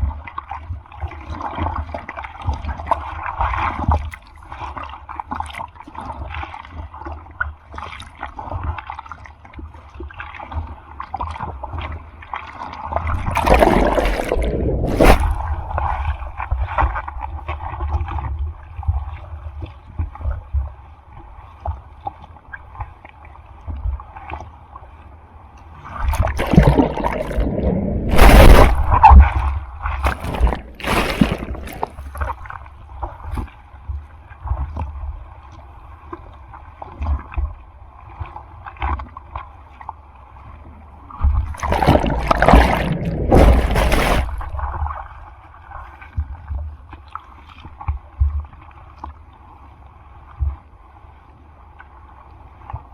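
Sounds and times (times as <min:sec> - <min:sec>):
sea water sloshing and gurgling: 0:00.0 - 0:52.9
rushes of splashing water: 0:10.3 - 0:19.2, 0:25.8 - 0:33.5, 0:41.2 - 0:46.0.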